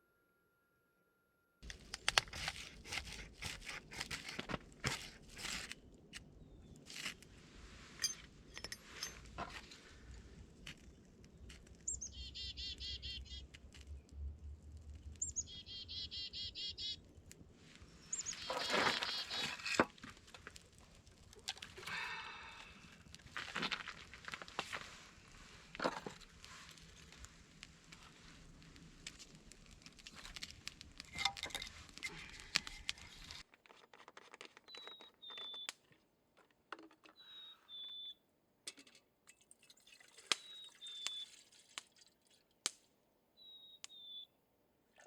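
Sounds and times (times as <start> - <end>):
clicks and crackles: 1.6 - 7.3, 8.0 - 12.1, 13.3 - 15.4, 17.0 - 38.1, 40.3 - 42.9
small birds singing: 11.4 - 13.5, 15.2 - 17.1, 17.8 - 19.6, 34.6 - 35.8, 37.1 - 38.2, 40.4 - 41.4, 43.4 - 44.4.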